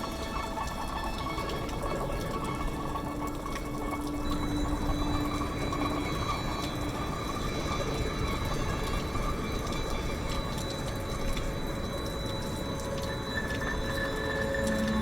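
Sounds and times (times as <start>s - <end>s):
running water: 0.0s - 15.0s.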